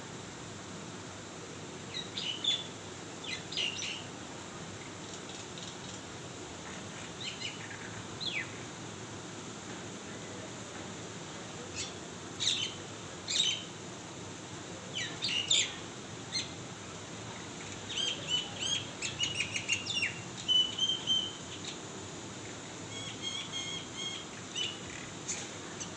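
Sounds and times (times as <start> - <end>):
birds chirping: 1.9 - 4.1, 7.0 - 8.7, 11.7 - 13.8, 15.0 - 16.6, 17.6 - 21.8, 22.9 - 25.9.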